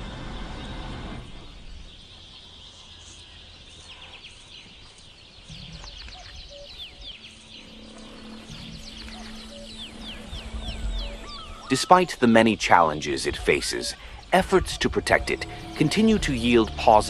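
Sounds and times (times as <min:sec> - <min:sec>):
small birds chirping: 0:00.0 - 0:17.0
low steady rumble: 0:13.0 - 0:17.0.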